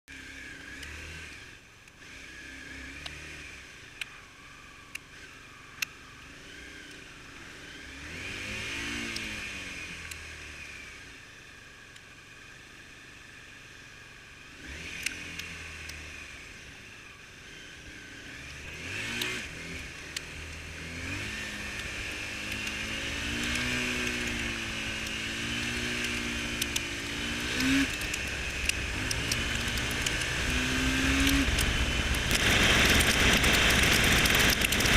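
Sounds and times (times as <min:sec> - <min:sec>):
motorcycle engine accelerating: 0:00.1 - 0:13.7, 0:14.4 - 0:34.9
sharp ticks: 0:14.9 - 0:16.0, 0:18.4 - 0:20.7, 0:21.7 - 0:34.9
wind and rain hiss: 0:26.2 - 0:34.9.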